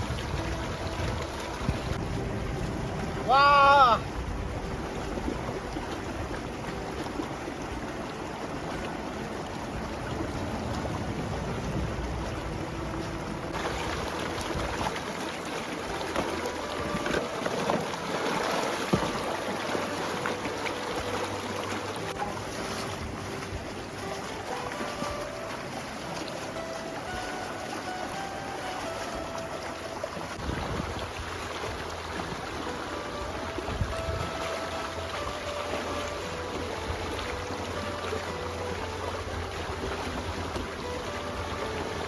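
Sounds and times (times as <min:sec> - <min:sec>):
wind buffeting microphone: 0:00.0 - 0:15.1, 0:28.9 - 0:35.4
stream water rushing: 0:00.0 - 0:42.0
water splashing: 0:00.0 - 0:42.0.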